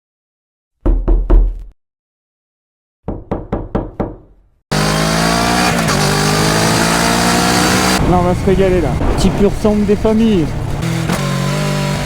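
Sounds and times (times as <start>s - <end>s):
sharp knocks: 0.8s - 1.7s, 3.1s - 4.3s.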